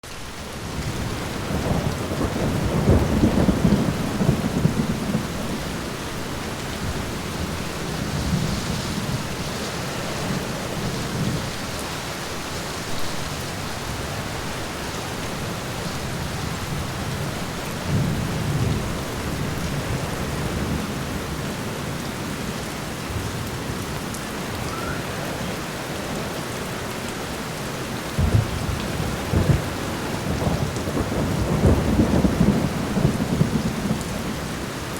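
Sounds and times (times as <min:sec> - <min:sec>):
rain on a window: 0:00.0 - 0:34.9
thunder rumbling: 0:00.7 - 0:11.8, 0:12.9 - 0:34.9.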